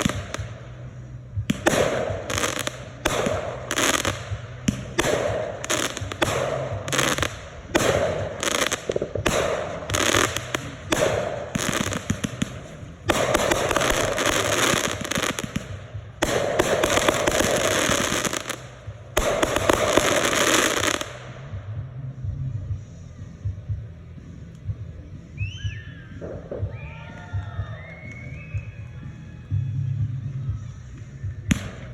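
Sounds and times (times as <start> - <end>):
fireworks popping and crackling: 0.0 - 21.6, 31.0 - 31.9.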